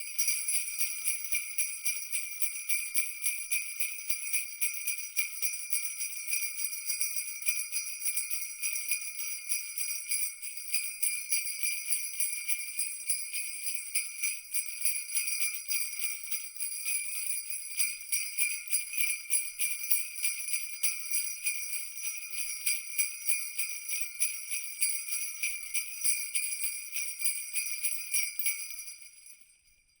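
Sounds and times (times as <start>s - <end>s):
jingle bells shaking: 0.0s - 30.0s.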